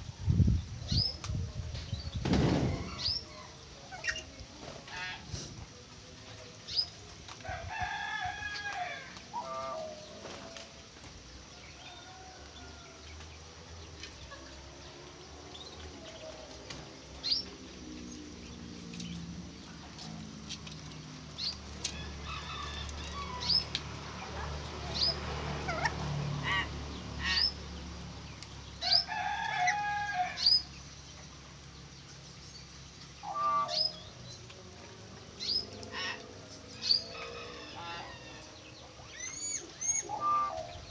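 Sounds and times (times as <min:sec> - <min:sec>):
harsh drawn-out bird calls: 0:33.2 - 0:34.2, 0:39.1 - 0:40.9
birds whistling: 0:39.1 - 0:40.9.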